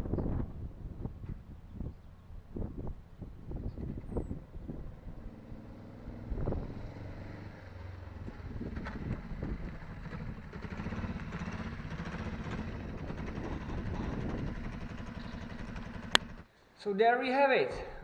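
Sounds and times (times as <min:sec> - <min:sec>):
motorcycle engine running: 0:03.4 - 0:16.5
man talking: 0:16.8 - 0:18.0.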